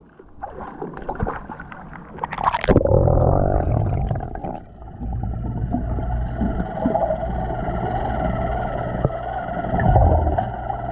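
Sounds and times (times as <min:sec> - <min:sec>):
water splash: 0:00.3 - 0:02.9
toy motor humming underwater: 0:04.5 - 0:10.9.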